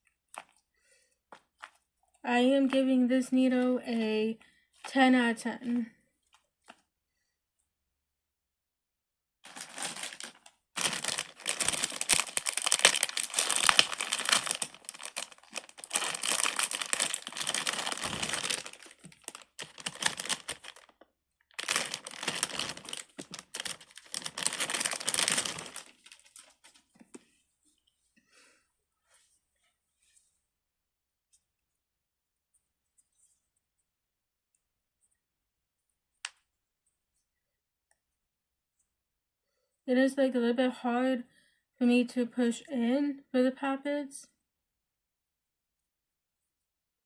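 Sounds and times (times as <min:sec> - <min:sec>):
crinkling and crumpling: 0:00.0 - 0:02.9, 0:09.4 - 0:28.2.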